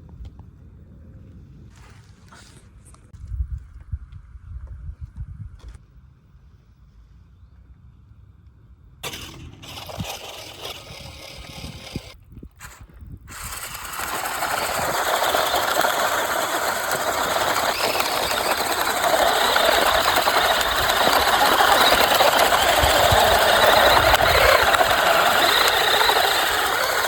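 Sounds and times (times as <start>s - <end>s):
radio-controlled car rattle and whir: 9.0s - 27.0s.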